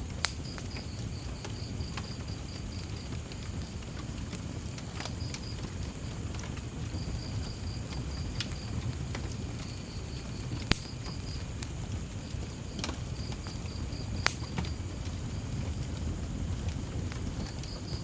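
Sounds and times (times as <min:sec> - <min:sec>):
crickets chirping: 0:00.0 - 0:18.0
wood fire crackling: 0:00.0 - 0:18.0
sharp loud fire pops: 0:10.6 - 0:11.8, 0:12.8 - 0:14.8.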